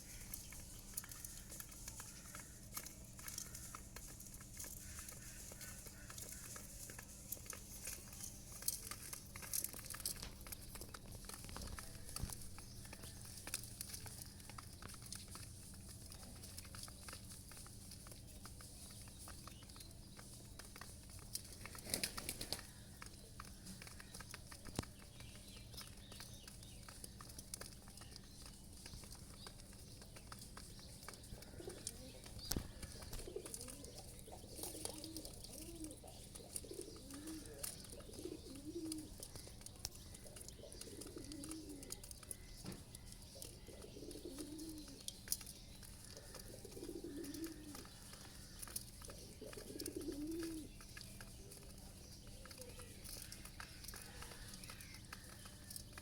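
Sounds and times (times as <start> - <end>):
rustling: 0.0 - 56.0
pigeons cooing: 31.2 - 55.9.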